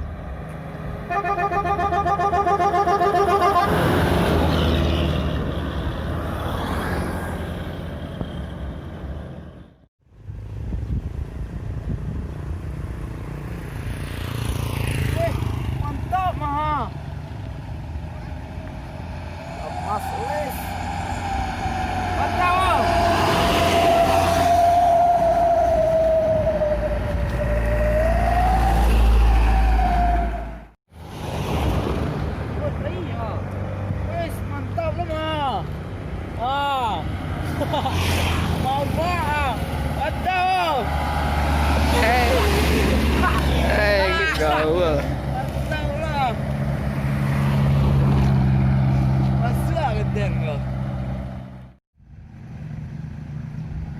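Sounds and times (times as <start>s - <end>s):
truck passing: 0.0s - 53.9s
truck horn: 1.0s - 5.2s.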